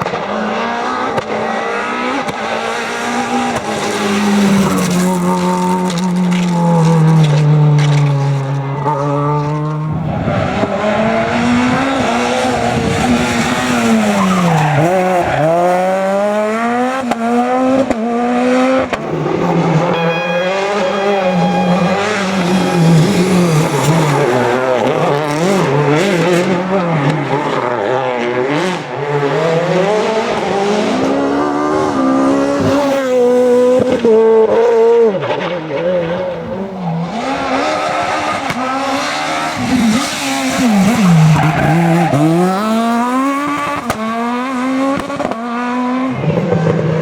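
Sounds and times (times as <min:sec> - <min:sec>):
car engine revving hard: 0:00.0 - 0:47.0.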